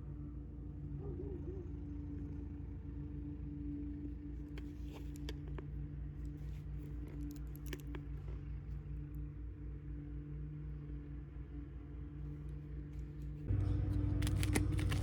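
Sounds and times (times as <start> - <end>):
pulsing low hum: 0.0 - 15.0
packaging crackling: 14.1 - 15.0.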